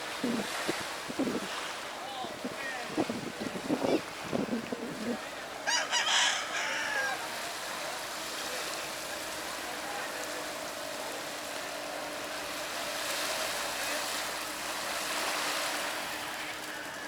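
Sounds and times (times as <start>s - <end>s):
rooster crowing: 5.6s - 7.3s.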